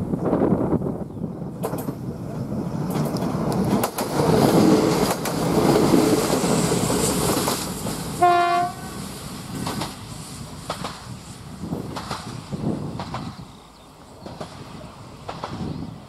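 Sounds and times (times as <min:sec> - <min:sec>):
diesel railcar approaching: 0:00.0 - 0:16.0
train horn blast: 0:08.2 - 0:09.0.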